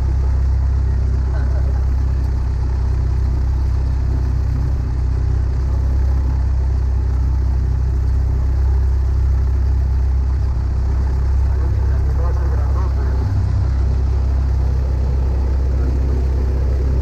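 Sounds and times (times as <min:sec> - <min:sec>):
propeller plane engine droning: 0:00.0 - 0:17.0.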